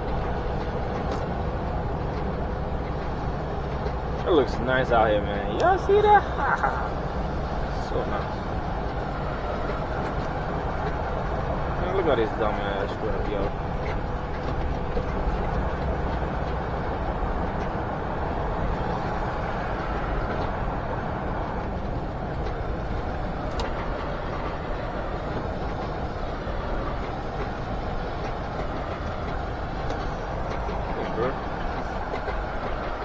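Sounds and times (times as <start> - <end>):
truck engine and road rumble: 0.0 - 33.0.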